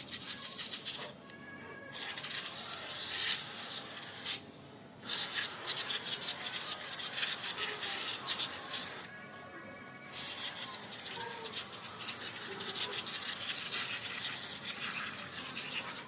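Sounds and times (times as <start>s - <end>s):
faint background music: 0.2s - 14.3s
scrubbing and hissing on coil: 5.0s - 9.1s, 10.1s - 16.0s.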